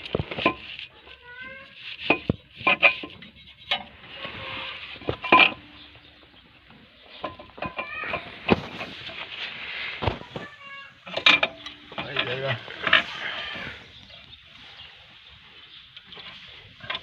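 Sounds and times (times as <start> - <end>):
metallic clinks and knocks: 7.1 - 8.3.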